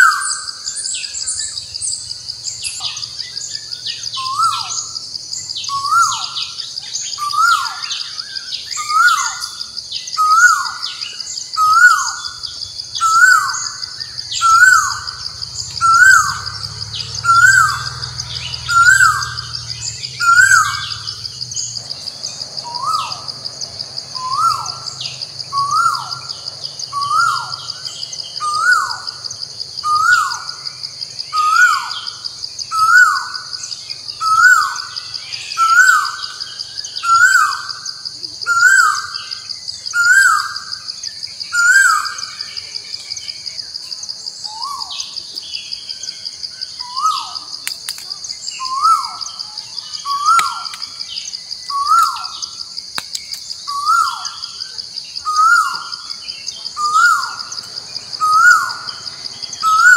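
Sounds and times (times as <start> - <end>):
bird call: 0.0 - 5.0, 5.6 - 23.3, 24.2 - 29.2, 29.8 - 30.6, 31.3 - 43.4, 44.4 - 59.9
high-pitched drone: 14.2 - 21.7.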